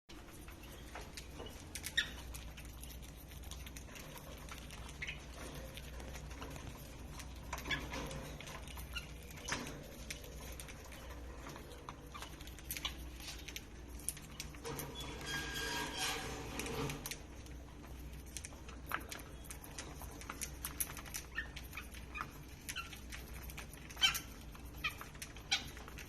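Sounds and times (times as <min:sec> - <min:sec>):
birds clicking and scratching: 0:00.1 - 0:26.0.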